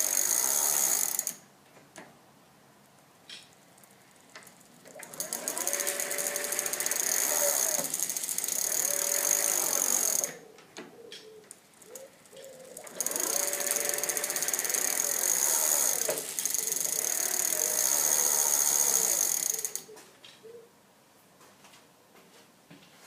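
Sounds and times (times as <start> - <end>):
mechanical gear noise: 3.8 - 10.4, 11.8 - 19.9
electric bike motor whine: 4.9 - 10.4, 12.8 - 19.9.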